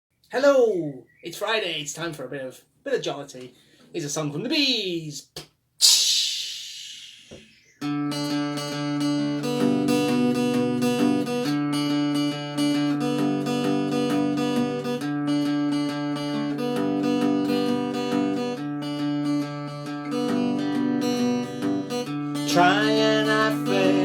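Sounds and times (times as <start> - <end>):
acoustic guitar strumming: 7.8 - 24.0.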